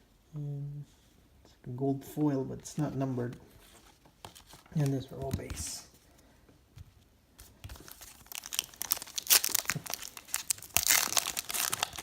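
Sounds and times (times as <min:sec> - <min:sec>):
foil wrapper crinkling and tearing: 0:07.7 - 0:12.0.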